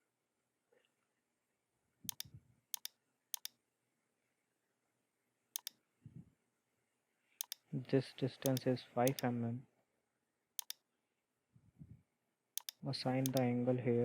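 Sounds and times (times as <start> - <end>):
computer mouse clicks: 2.1 - 3.6, 5.6 - 5.8, 7.4 - 7.6, 8.4 - 9.3, 10.6 - 10.8, 12.6 - 13.4.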